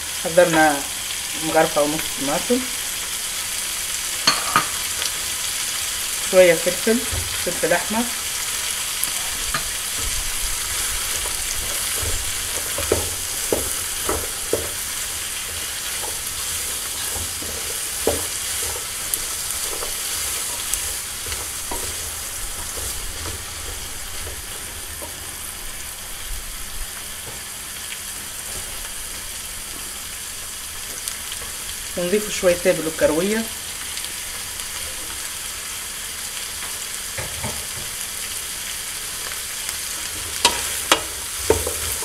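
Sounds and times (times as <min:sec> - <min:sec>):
food sizzling in oil: 0:00.0 - 0:42.0
spoon knocking and scraping pot: 0:04.2 - 0:04.9, 0:09.3 - 0:25.3.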